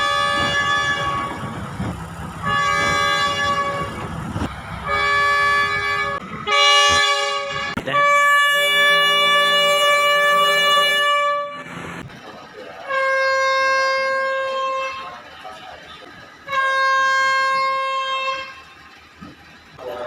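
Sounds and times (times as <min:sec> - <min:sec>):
train horn blasts: 0:00.0 - 0:01.6, 0:02.4 - 0:04.1, 0:04.8 - 0:11.7, 0:12.9 - 0:15.2, 0:16.5 - 0:18.7.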